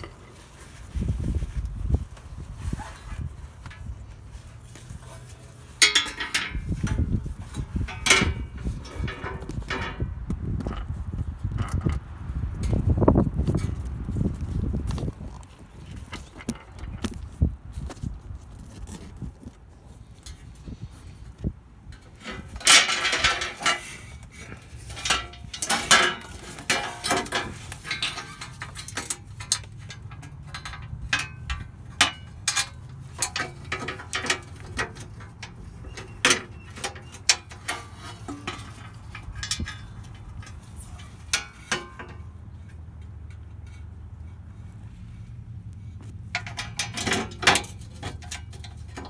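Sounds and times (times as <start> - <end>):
metal tools clicking and clanking: 2.8 - 10.9, 21.9 - 44.8, 46.0 - 49.0.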